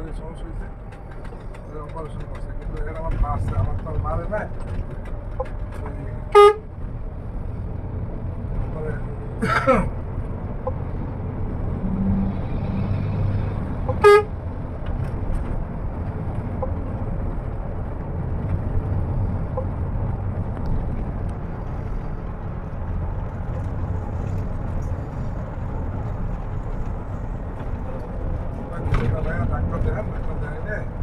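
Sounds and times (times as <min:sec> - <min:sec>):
bus engine rumble: 0:00.0 - 0:31.0
road noise: 0:00.0 - 0:31.0
short horn toot: 0:06.3 - 0:06.6, 0:13.9 - 0:14.3.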